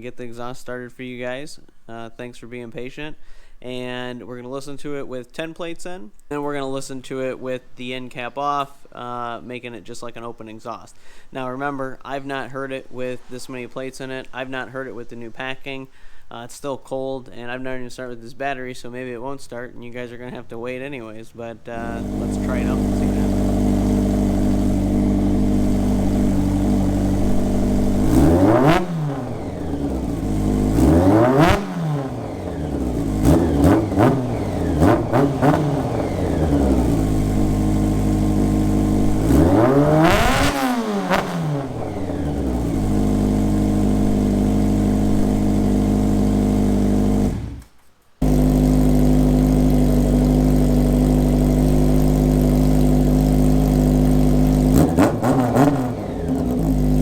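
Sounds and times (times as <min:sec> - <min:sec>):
motorcycle engine revving and idling: 0:21.8 - 0:57.0.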